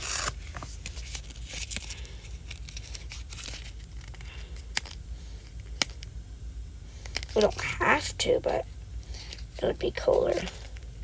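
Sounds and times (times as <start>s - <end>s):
sticker paper crinkling and tearing: 0.0s - 4.2s.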